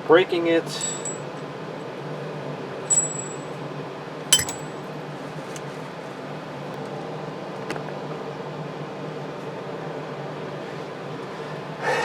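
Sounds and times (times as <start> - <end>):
metal part clinking down: 0.7 - 1.4, 2.9 - 3.5, 4.4 - 4.8.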